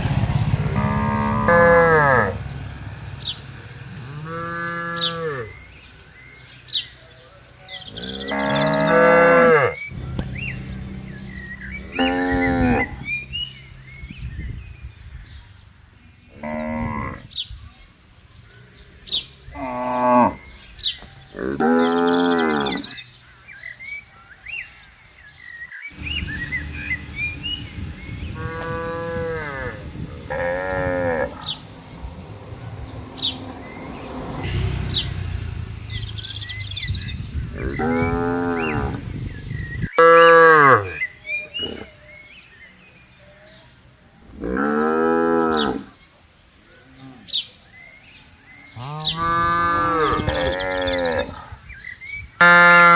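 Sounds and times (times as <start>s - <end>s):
cattle mooing: 0.7s - 2.4s, 3.9s - 5.6s, 7.8s - 13.4s, 21.3s - 23.0s, 28.3s - 31.6s, 48.8s - 51.4s.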